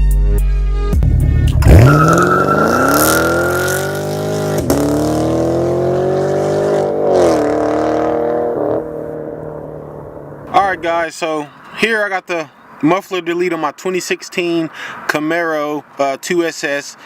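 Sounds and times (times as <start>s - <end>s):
car engine accelerating hard: 1.4s - 10.6s.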